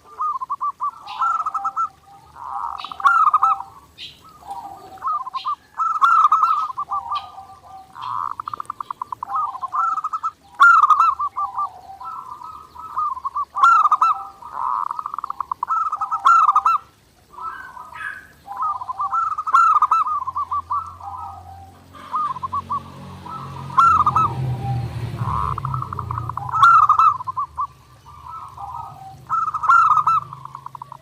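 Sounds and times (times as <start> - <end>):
dove cooing in trilled phrases: 0.0 - 31.0
high bird chirps: 0.0 - 31.0.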